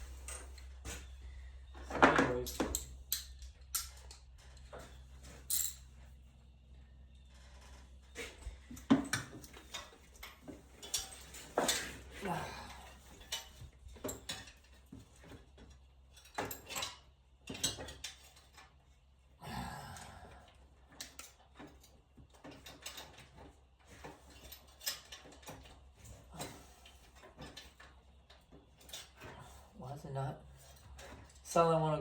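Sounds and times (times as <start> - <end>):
metal hand tools clinking: 5.4 - 5.9.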